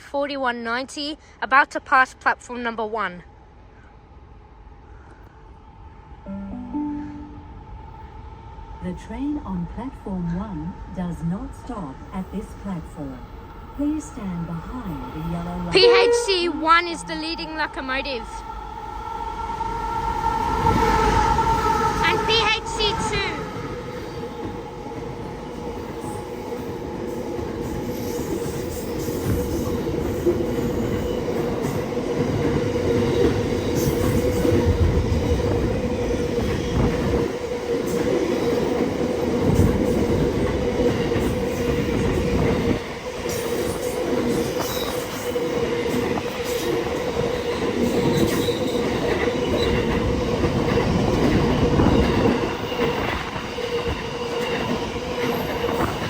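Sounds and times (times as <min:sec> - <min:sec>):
train wheels rumbling on rail: 0:13.4 - 0:56.0.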